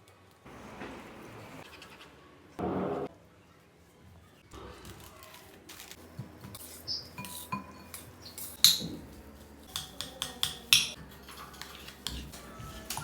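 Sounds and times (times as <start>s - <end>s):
metal utensil clinking on cookware: 7.1s - 9.0s.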